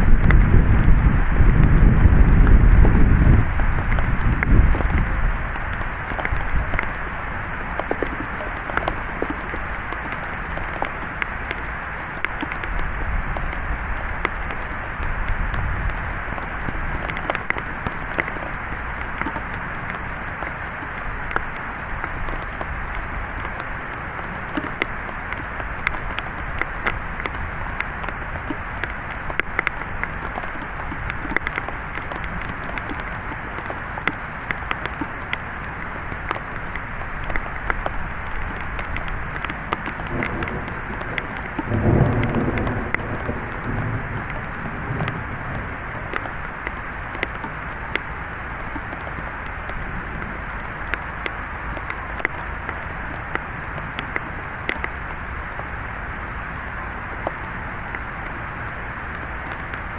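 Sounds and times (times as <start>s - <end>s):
low thunder rumble: 0.0s - 7.2s, 40.0s - 47.2s
heavy rain pattering: 0.0s - 59.9s.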